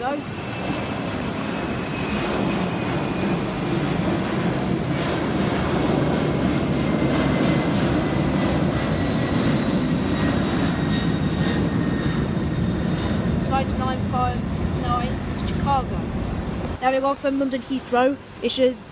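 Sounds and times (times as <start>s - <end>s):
faint jet engine whine: 0.0s - 18.9s
jet engine rumble: 0.0s - 18.9s.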